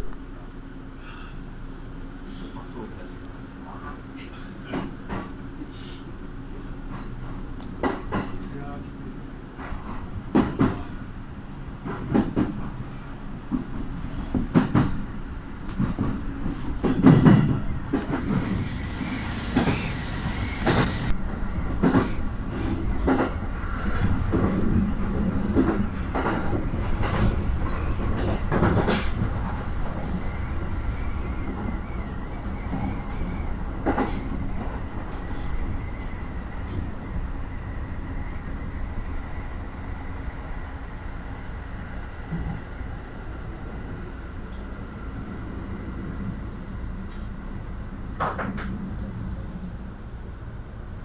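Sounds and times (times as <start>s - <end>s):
train rumbling on rails: 0.0s - 51.0s
wheels clacking over rail joints: 16.8s - 21.2s
brief hiss: 18.2s - 21.1s.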